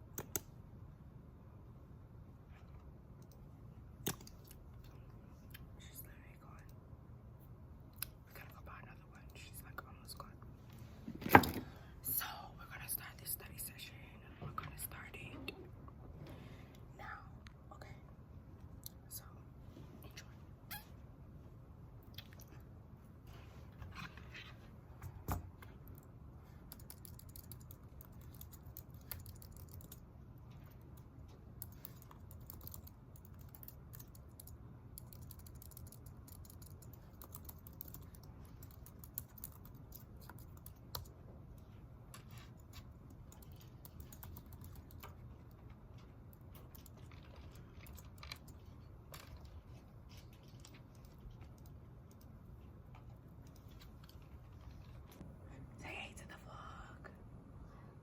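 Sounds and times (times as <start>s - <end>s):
low steady hum: 0.0s - 58.0s
keyboard typing: 25.8s - 30.0s, 31.6s - 41.2s, 42.2s - 45.6s.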